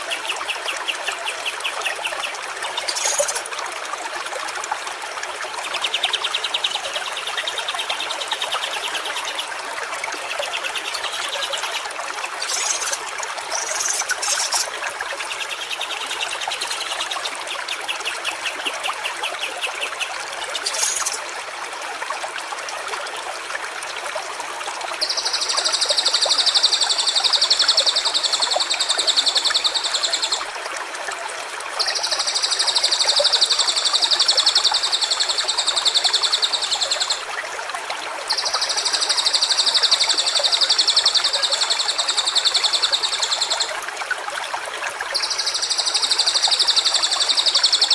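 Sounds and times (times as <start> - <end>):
stream running over stones: 0.0 - 47.9
bird chirps: 12.4 - 13.0, 45.2 - 47.9.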